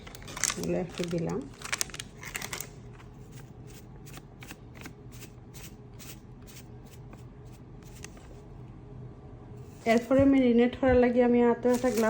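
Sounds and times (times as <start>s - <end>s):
hands rustling packaging: 0.0s - 4.2s, 11.7s - 12.0s
low steady hum: 0.0s - 12.0s.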